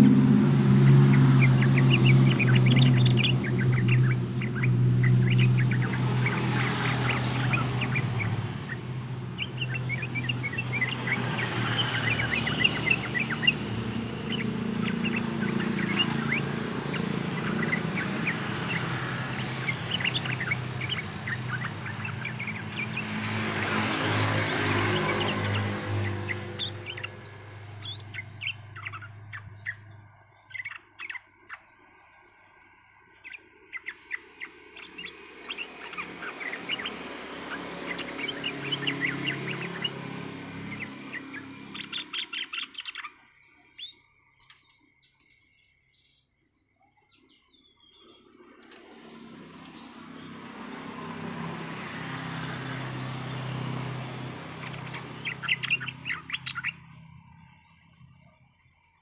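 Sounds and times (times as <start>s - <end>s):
rushing background noise: 0.0s - 30.7s, 33.9s - 43.1s
bird chirping: 0.0s - 59.0s.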